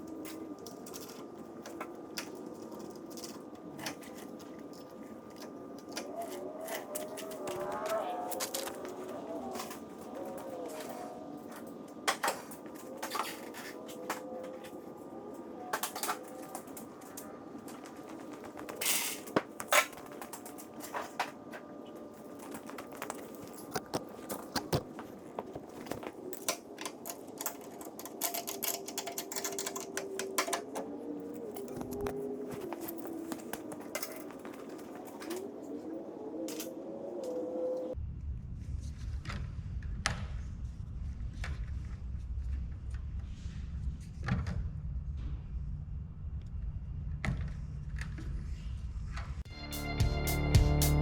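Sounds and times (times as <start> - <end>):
steady background noise: 0.0 - 49.5
tools clicking and tapping: 22.2 - 35.4.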